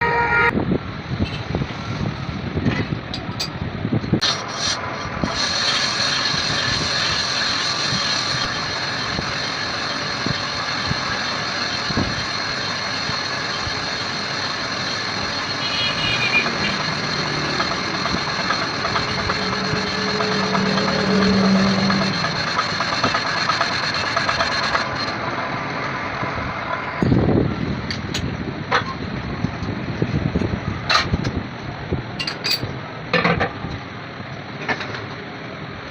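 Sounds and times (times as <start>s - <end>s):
high whine: 0.0s - 30.6s
mechanical running noise: 4.6s - 25.4s.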